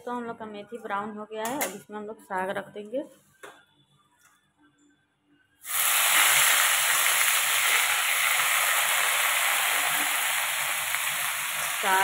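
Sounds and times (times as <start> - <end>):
hot oil sizzling: 5.6 - 12.0.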